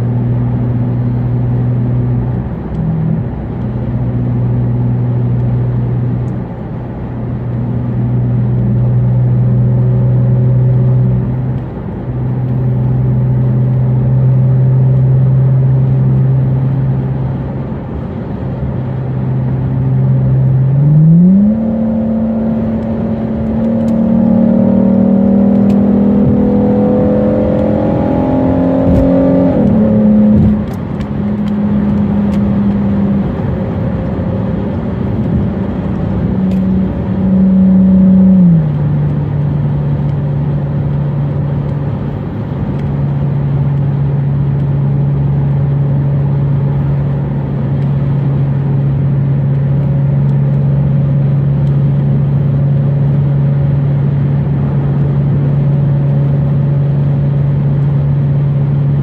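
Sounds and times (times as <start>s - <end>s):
car engine accelerating: 0.0s - 59.0s
road noise: 0.0s - 59.0s.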